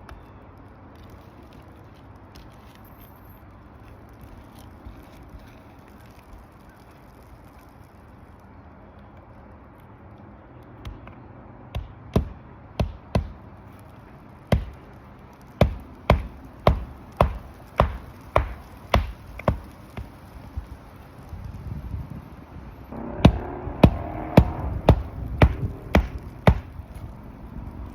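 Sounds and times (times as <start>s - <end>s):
hammer driving nails: 15.6s - 19.7s.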